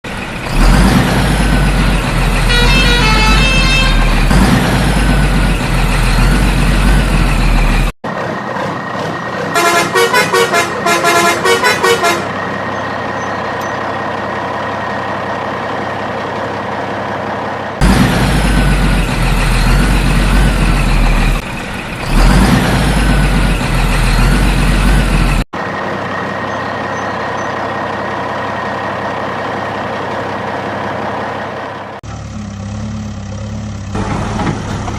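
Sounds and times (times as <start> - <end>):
truck engine running: 0.0 - 34.9
truck horn toots: 2.4 - 4.3, 9.5 - 12.4.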